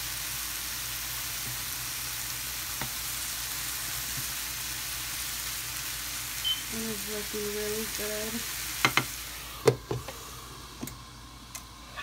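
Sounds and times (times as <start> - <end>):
mushrooms sizzling in a frying pan: 0.0 - 12.0.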